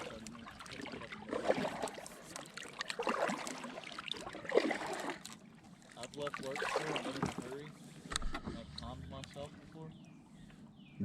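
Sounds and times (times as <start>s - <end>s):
water splashing and dripping: 0.0s - 7.6s
kayak paddle pulling through water: 0.0s - 9.8s.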